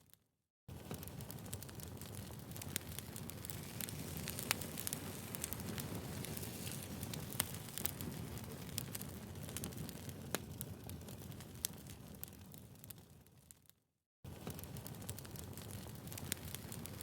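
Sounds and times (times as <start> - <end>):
firewood crackling and popping: 0.7 - 17.0.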